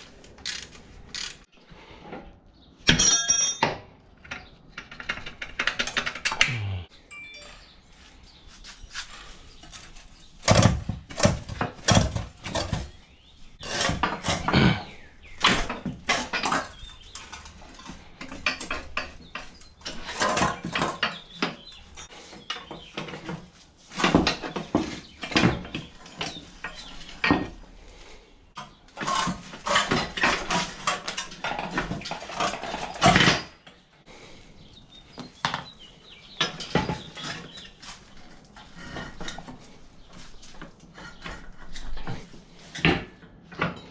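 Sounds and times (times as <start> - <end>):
tools and metal parts clanking: 2.8 - 6.4, 9.6 - 27.7, 28.6 - 34.0, 35.6 - 39.6, 40.2 - 43.9.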